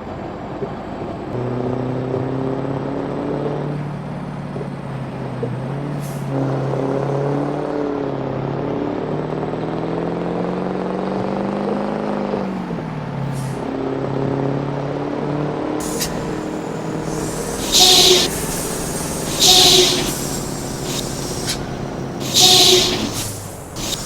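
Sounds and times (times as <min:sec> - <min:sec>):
short high hisses: 0:15.8 - 0:24.0
truck engine running: 0:15.8 - 0:24.0.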